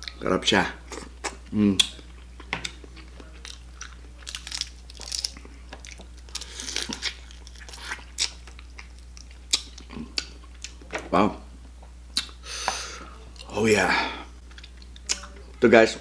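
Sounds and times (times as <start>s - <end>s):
crab shell crunching: 3.4s - 10.8s.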